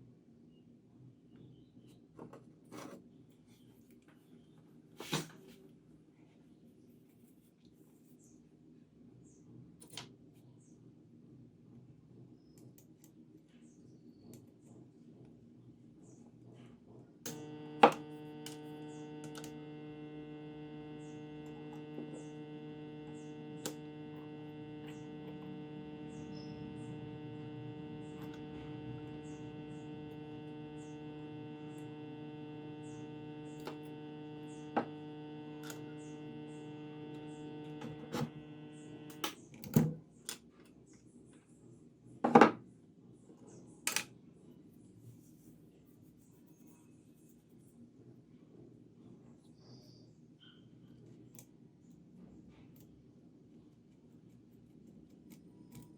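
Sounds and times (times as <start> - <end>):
transformer buzzing mains hum: 17.3 - 39.7.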